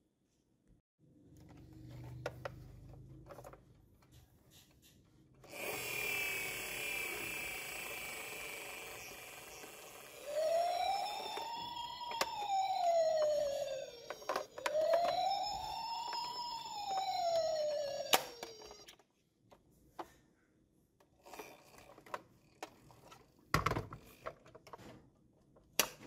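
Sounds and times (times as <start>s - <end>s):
plastic toy vehicles handled: 1.3s - 4.9s, 10.4s - 20.3s, 21.0s - 26.0s
tinny electronic toy effect: 5.4s - 18.9s
toy siren wail: 5.6s - 19.0s.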